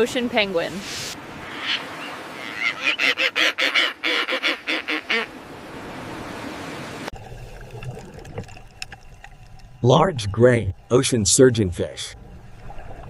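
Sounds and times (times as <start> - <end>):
penguin calling: 1.5 - 5.3.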